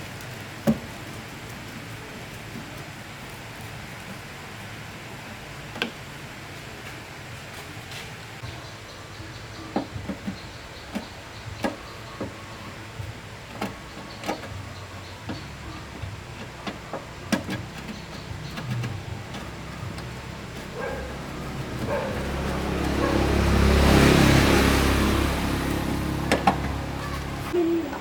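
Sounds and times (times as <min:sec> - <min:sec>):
truck engine idling: 0:08.4 - 0:28.0
sharp clicks and knocks: 0:15.2 - 0:23.2, 0:25.7 - 0:27.4.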